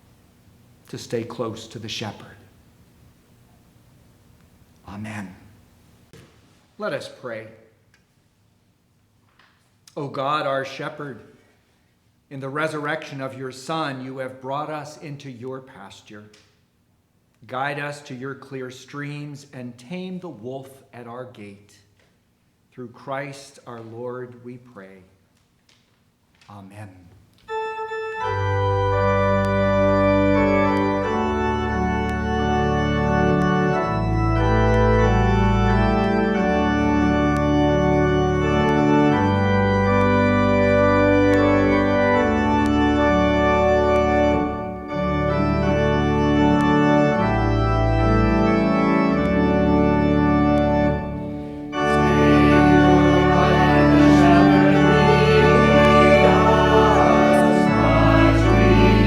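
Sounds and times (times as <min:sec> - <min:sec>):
organ music: 0:27.4 - 0:59.0.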